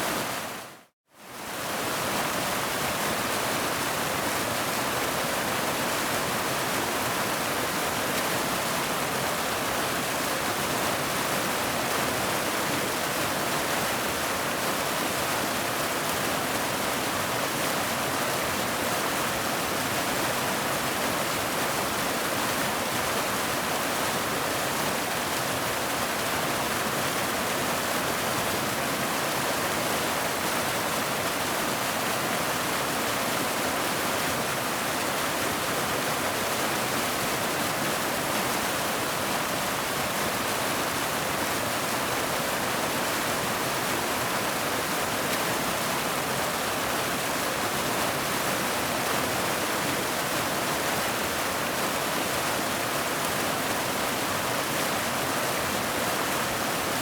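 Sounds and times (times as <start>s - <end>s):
waterfall rushing: 1.8s - 57.0s.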